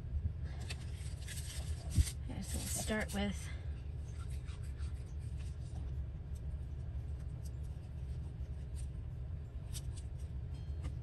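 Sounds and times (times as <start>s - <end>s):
steady low hum: 0.0s - 11.0s
paper rustling: 0.5s - 3.2s.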